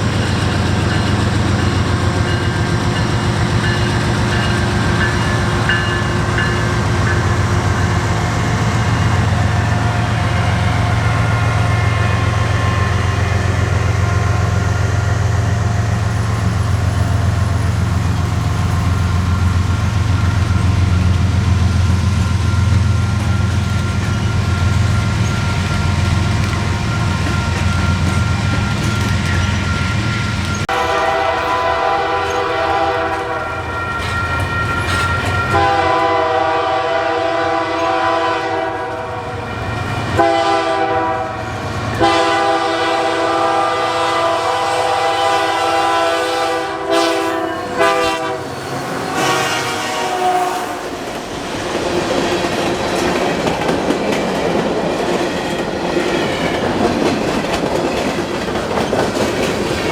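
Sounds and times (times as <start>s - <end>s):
diesel locomotive engine rumble: 0.0s - 59.9s
locomotive air horn blasts: 30.6s - 39.5s, 40.1s - 50.9s.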